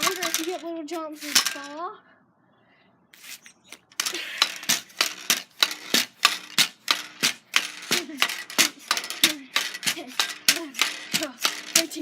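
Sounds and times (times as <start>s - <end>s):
pogo stick metallic clanks: 0.0s - 1.8s, 3.5s - 12.0s.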